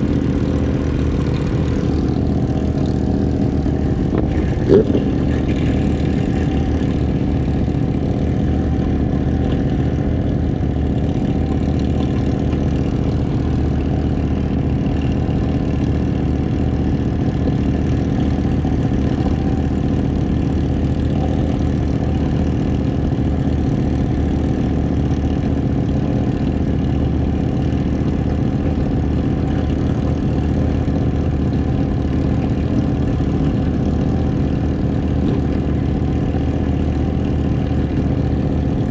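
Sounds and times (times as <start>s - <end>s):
motorcycle engine running steadily: 0.0s - 38.9s.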